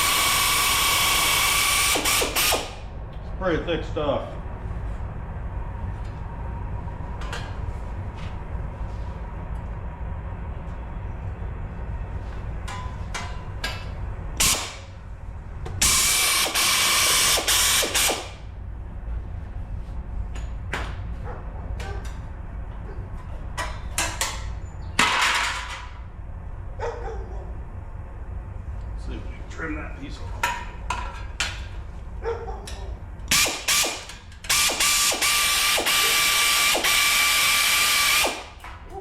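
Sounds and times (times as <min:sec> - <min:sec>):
air shears cutting steel: 0:00.0 - 0:02.9, 0:14.4 - 0:15.0, 0:15.8 - 0:18.5, 0:33.3 - 0:38.8
air tool burst: 0:00.0 - 0:02.9, 0:14.4 - 0:14.9, 0:15.8 - 0:18.5, 0:33.3 - 0:38.6.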